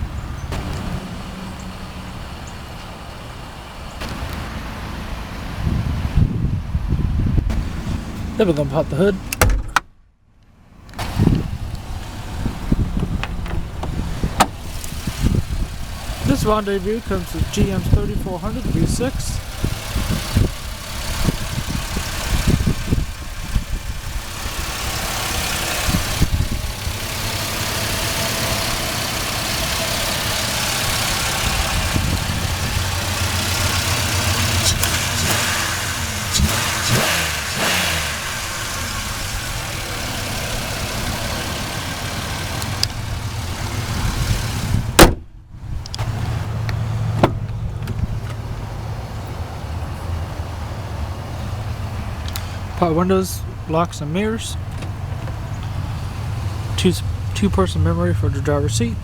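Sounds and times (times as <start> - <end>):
car engine idling: 0.0 - 59.0
loud sharp thump: 9.4 - 9.9, 45.0 - 45.3.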